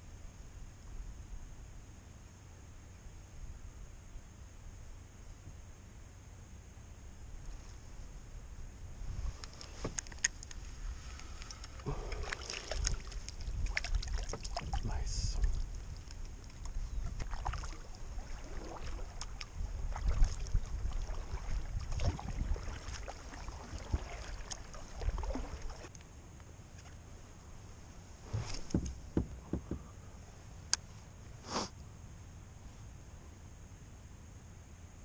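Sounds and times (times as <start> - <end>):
low microphone rumble: 10.6 - 24.2
gear knocking in plastic kayak: 28.3 - 30.0.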